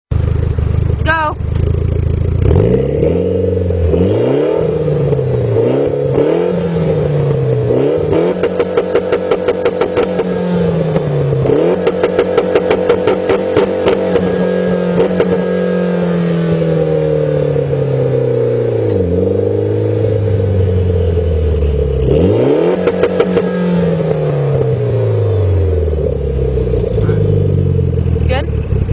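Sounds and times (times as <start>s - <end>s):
car engine revving: 0.1s - 28.9s
engine rapid stutter: 7.7s - 16.0s, 21.8s - 28.9s.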